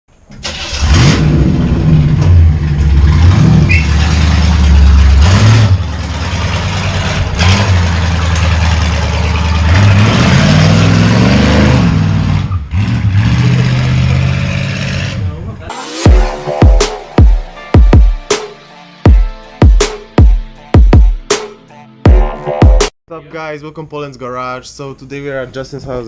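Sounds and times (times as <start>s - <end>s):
car engine revving: 0.5s - 16.9s.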